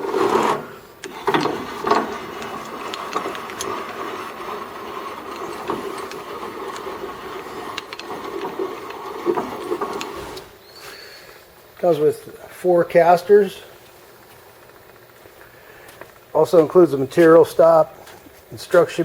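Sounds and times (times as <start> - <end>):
band saw motor humming: 0.0 - 10.6.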